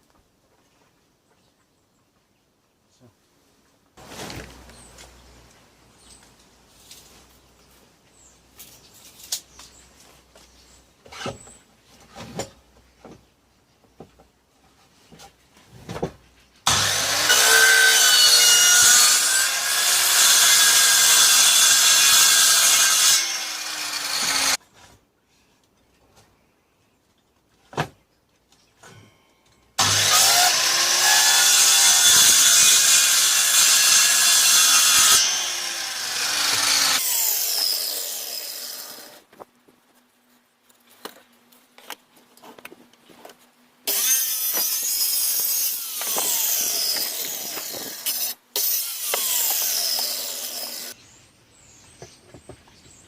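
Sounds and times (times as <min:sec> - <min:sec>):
power tool working under load: 0:16.7 - 0:24.6, 0:29.8 - 0:39.2, 0:43.9 - 0:51.0.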